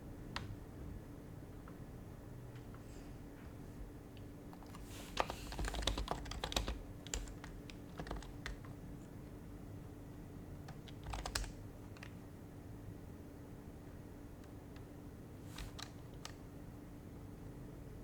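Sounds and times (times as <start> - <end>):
typing on a keyboard: 4.6 - 8.8, 10.6 - 12.2, 15.5 - 16.4.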